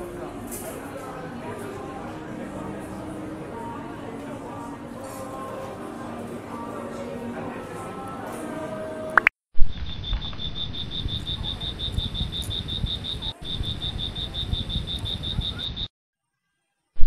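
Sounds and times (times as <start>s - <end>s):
insect chirping: 9.7s - 15.9s.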